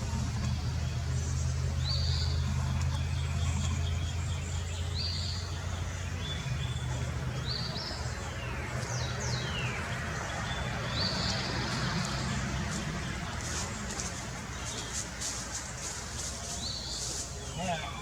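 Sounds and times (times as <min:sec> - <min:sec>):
low steady hum: 0:00.0 - 0:18.0
wild birds calling: 0:00.0 - 0:18.0.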